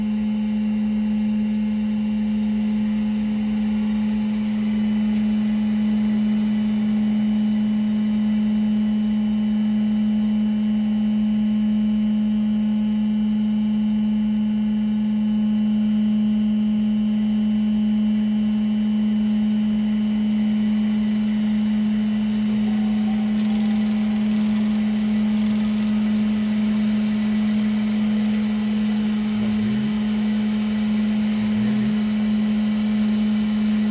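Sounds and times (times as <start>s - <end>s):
band saw running with steady hum: 19.4s - 33.9s.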